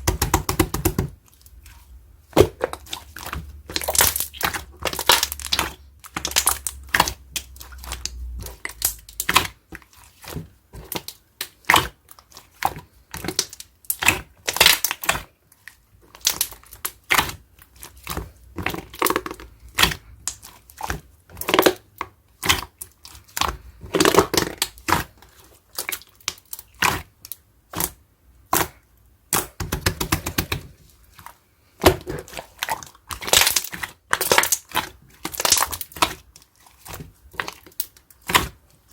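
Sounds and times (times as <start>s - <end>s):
slime crackling and popping: 0.0s - 38.9s.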